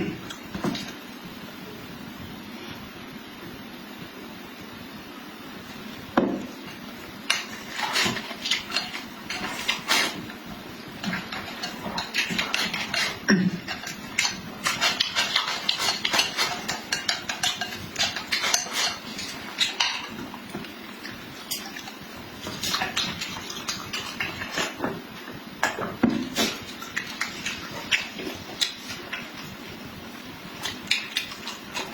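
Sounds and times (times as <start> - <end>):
utensils clinking against dishes: 11.0 - 20.3.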